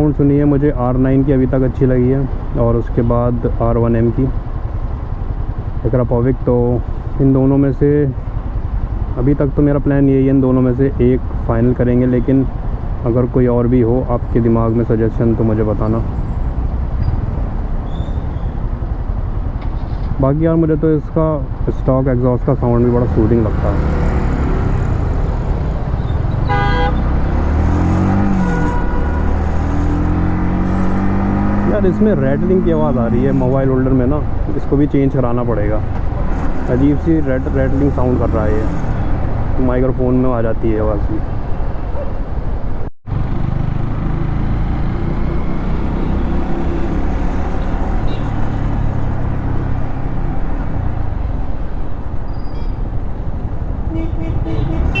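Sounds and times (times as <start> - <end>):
road and wind noise: 0.0 - 55.0
faint horn toot: 26.4 - 27.1, 28.4 - 29.2, 53.9 - 55.0
vehicle horn blast: 26.4 - 27.1, 28.3 - 29.3, 48.0 - 48.3, 53.9 - 55.0.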